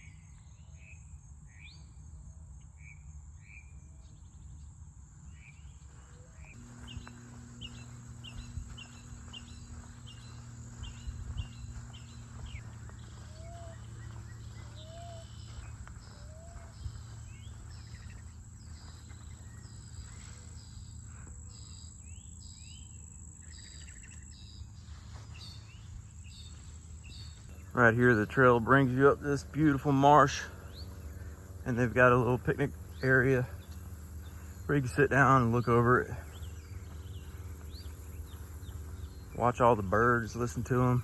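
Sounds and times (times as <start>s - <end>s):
birds singing and calling: 0.0s - 41.0s
low outdoor rumble: 0.5s - 41.0s
high-pitched insect buzz: 6.4s - 28.8s.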